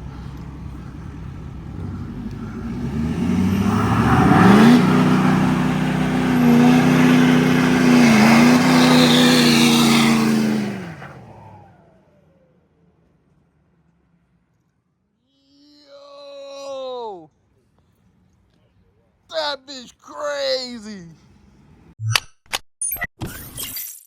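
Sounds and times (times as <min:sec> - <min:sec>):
vehicle engine accelerating hard: 0:00.0 - 0:12.8.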